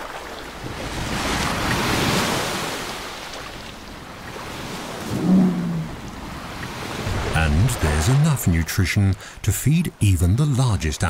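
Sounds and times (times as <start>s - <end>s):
ocean surf washing in: 0.6s - 11.0s.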